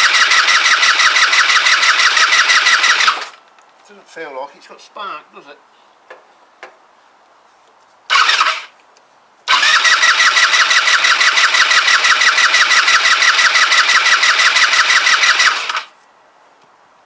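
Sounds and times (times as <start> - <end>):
scooter starter cranking engine: 0.0 - 3.4, 8.1 - 8.7, 9.5 - 15.9.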